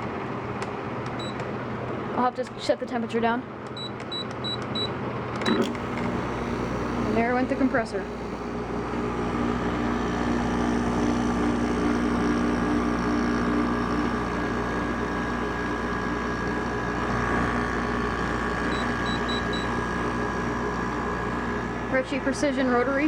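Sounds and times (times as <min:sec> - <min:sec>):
air conditioner hum and fan whir: 0:00.0 - 0:10.0.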